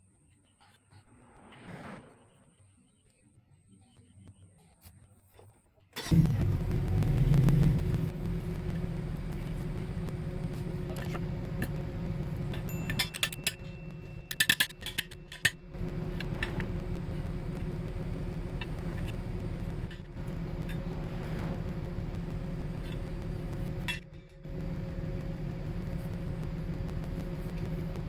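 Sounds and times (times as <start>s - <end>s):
vehicle engine idling: 6.0s - 28.0s
metallic clinks and rattles: 12.5s - 15.6s.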